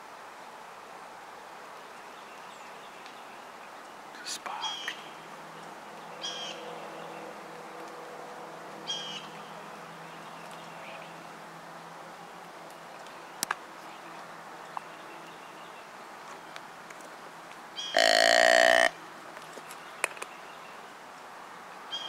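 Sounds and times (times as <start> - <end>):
bird call: 17.8 - 19.0.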